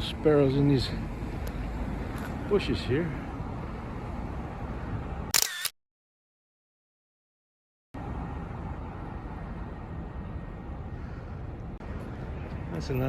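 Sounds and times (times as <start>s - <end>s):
street background rumble: 0.0s - 5.3s, 8.0s - 13.0s.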